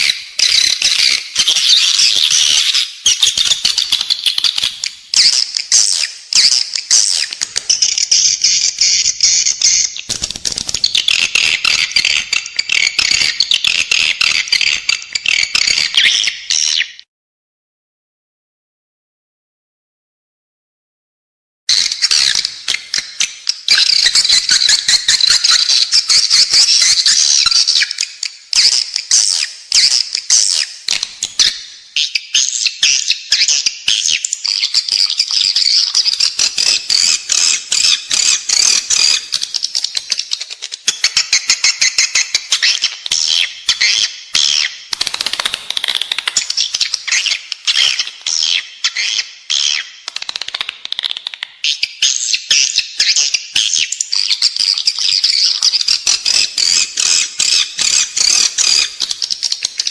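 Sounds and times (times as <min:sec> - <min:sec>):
high twittering bird chirps: 0:00.0 - 0:17.0, 0:21.7 - 0:50.0, 0:51.7 - 0:59.9
rapid clicks: 0:44.9 - 0:46.5.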